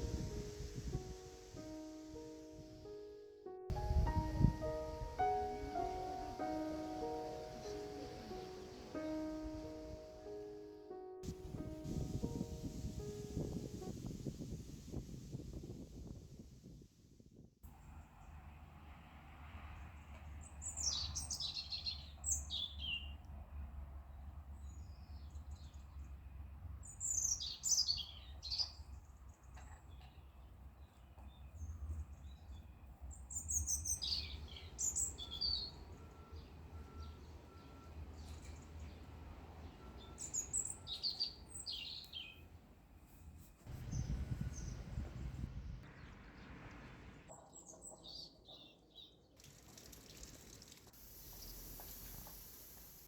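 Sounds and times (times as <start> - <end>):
songbird chirping: 0.0 - 14.1, 20.4 - 23.3, 24.1 - 49.3
low steady rumble: 42.6 - 47.3.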